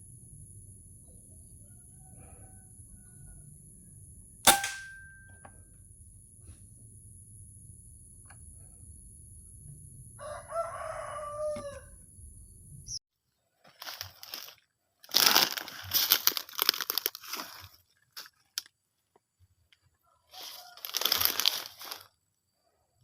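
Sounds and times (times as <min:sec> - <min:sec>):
steady background hum: 0:00.0 - 0:10.2
rooster crowing: 0:01.7 - 0:03.4, 0:10.2 - 0:12.0
crackling rustling noise: 0:13.6 - 0:18.7, 0:20.3 - 0:22.2.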